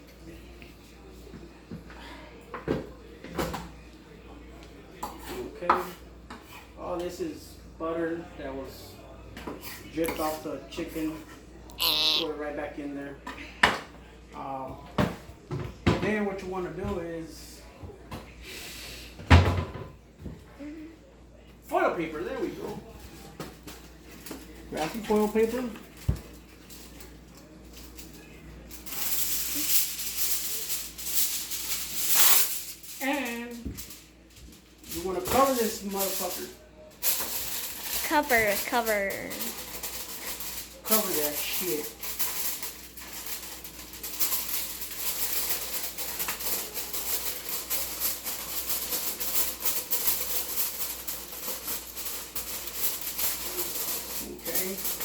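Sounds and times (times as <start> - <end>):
aluminium foil crinkling: 27.7 - 34.0, 34.6 - 55.0.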